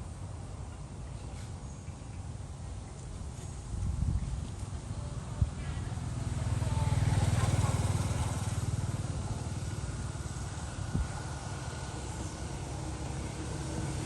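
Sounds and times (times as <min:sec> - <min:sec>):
vehicle engine running: 0:04.0 - 0:14.0.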